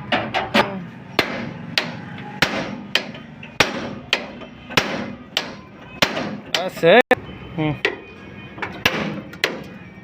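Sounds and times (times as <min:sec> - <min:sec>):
hammer striking metal: 0:00.1 - 0:06.8, 0:08.6 - 0:09.8.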